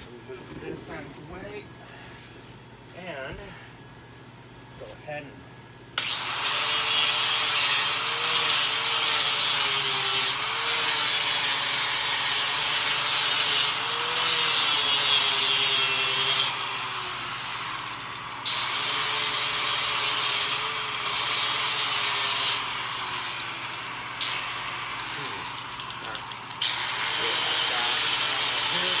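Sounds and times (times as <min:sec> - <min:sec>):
welding arc crackling and sizzling: 0:06.5 - 0:16.6.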